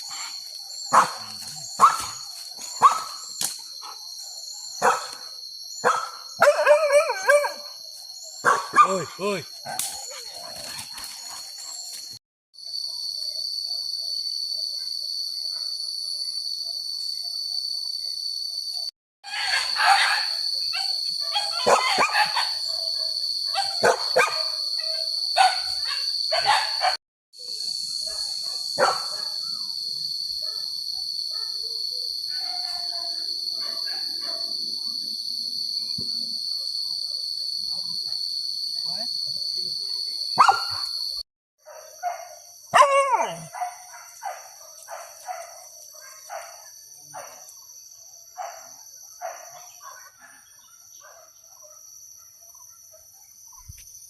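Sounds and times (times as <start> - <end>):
forest insects droning: 0.0 - 54.0
dogs barking: 0.9 - 3.2, 4.8 - 7.8, 8.4 - 11.4, 19.4 - 27.0, 28.0 - 29.5, 33.6 - 34.6, 40.4 - 40.9, 41.6 - 47.5, 48.4 - 53.1.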